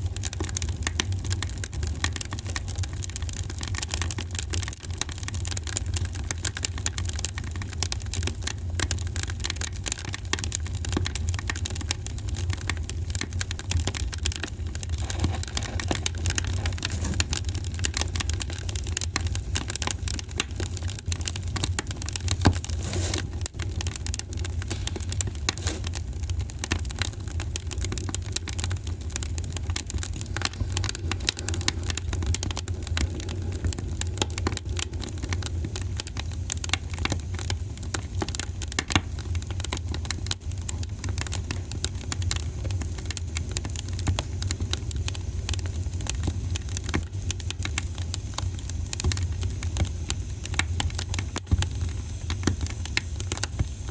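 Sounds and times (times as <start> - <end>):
wood fire crackling: 0.0 - 53.9.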